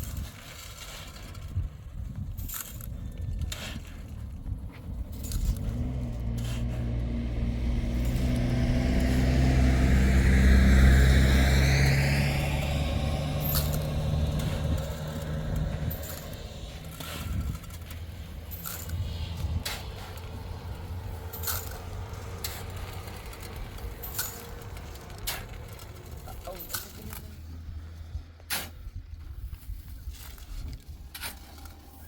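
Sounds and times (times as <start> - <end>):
vehicle passing by: 3.5 - 28.4.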